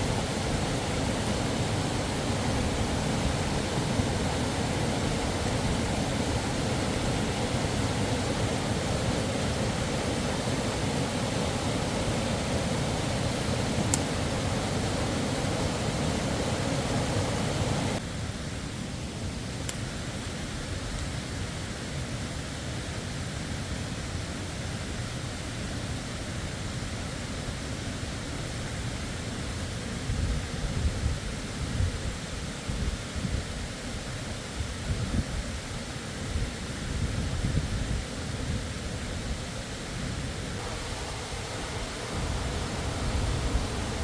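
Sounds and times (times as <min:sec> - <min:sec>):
waterfall rushing: 0:00.0 - 0:18.0, 0:39.6 - 0:44.0.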